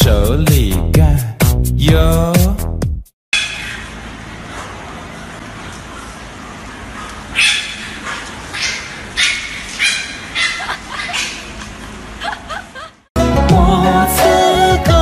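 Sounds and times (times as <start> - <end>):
dog barking: 5.9 - 11.5.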